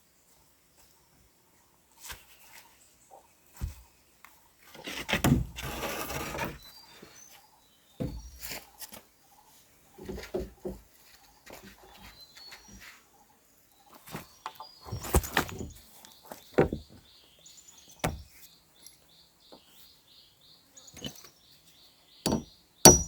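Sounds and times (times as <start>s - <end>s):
rustling scrape: 4.8s - 6.7s
faint bird chirps: 6.6s - 22.8s
knocks and thuds: 8.0s - 8.4s, 18.0s - 18.3s, 22.3s - 23.0s.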